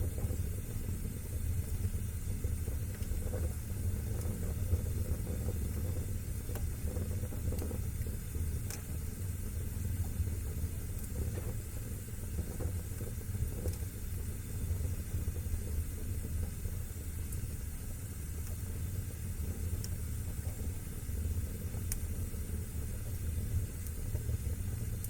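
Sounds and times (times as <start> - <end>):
fire crackles and pops: 0.0 - 25.0
low rumble of flames: 0.0 - 25.0.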